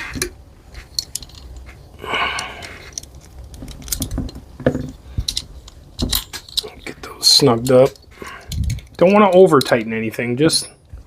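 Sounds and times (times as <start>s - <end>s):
metal screws clinking: 0.8s - 1.7s, 2.4s - 9.8s.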